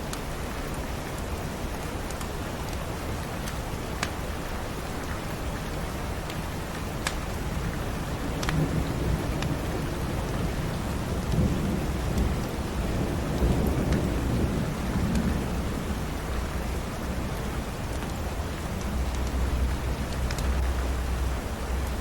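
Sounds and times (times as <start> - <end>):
steady rain: 0.0 - 22.0
low rumble of thunder: 7.5 - 22.0.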